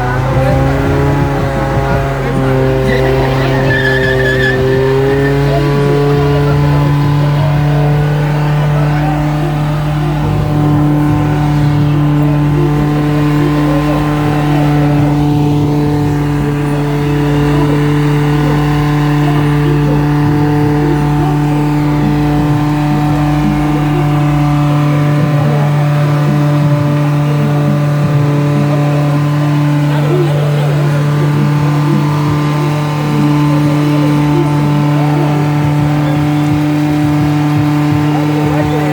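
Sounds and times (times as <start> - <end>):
car engine at high revs: 0.0 - 38.9
spinning tires hissing: 0.0 - 38.9.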